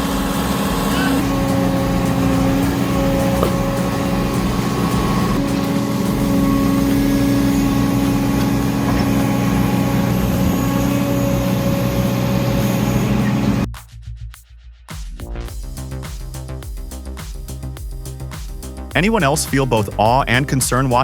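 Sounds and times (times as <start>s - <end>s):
heavy machinery engine droning: 0.0s - 13.7s.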